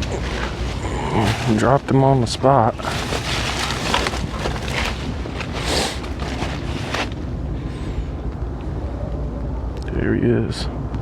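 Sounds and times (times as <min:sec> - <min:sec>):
footsteps rustling through brush: 0:00.0 - 0:07.3
wind rumbling on microphone: 0:00.0 - 0:11.0.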